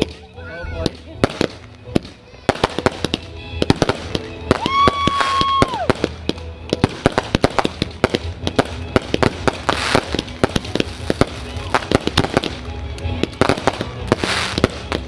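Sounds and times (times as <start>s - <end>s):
fireworks bangs: 0.8s - 15.0s
firework whistle: 3.6s - 6.2s.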